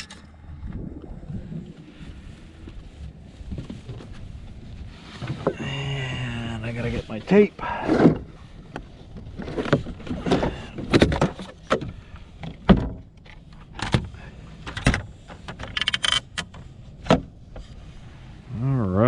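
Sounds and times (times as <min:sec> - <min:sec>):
gear knocks and clunks: 0:07.6 - 0:17.7.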